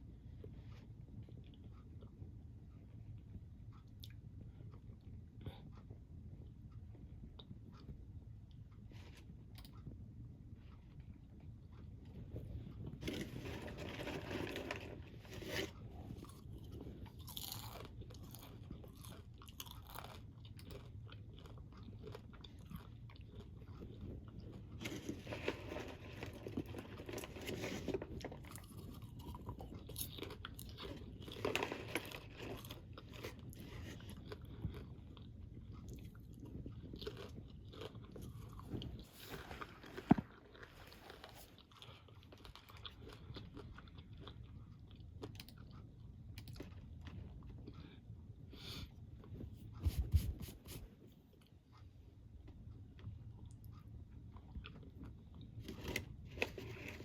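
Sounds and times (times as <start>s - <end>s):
crunchy snack chewing: 13.0s - 45.8s.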